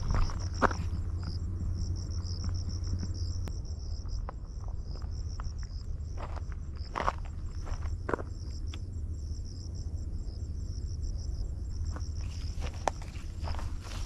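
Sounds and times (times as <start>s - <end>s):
footsteps on trail: 0.0s - 8.7s, 11.9s - 14.0s
insects chirping trill: 0.0s - 14.0s.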